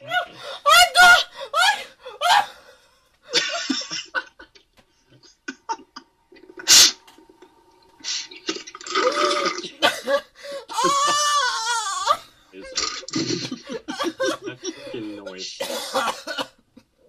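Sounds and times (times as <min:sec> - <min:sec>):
laugh-like vocal sound: 0:03.3 - 0:06.8, 0:10.7 - 0:11.5, 0:12.6 - 0:15.0.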